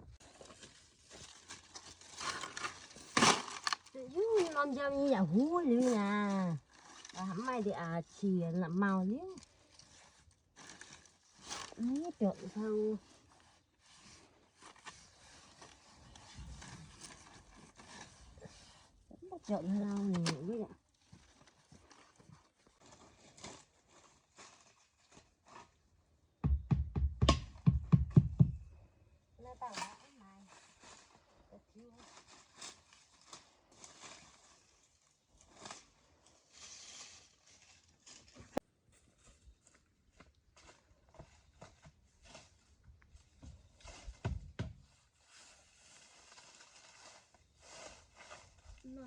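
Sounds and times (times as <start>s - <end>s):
loud rapid knocks: 26.4s - 28.6s
deep thumps: 26.4s - 28.8s.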